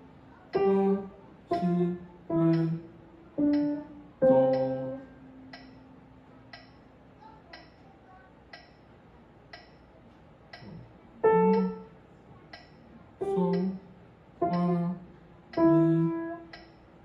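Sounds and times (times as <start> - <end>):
metronome ticking: 0.5 - 6.9, 7.5 - 7.8, 8.5 - 8.8, 9.5 - 9.8, 10.5 - 11.9, 12.5 - 13.8, 14.4 - 14.9, 15.5 - 16.8
piano note: 0.6 - 5.5.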